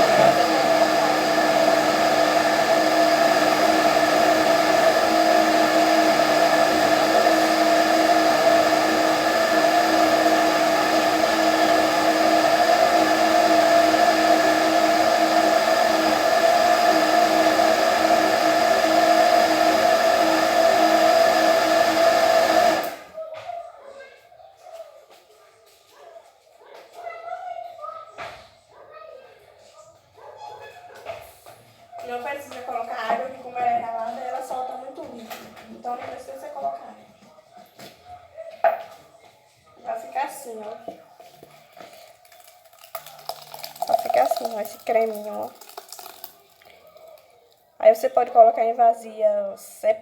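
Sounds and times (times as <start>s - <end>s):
blender motor running: 0.0s - 23.2s, 42.4s - 46.6s.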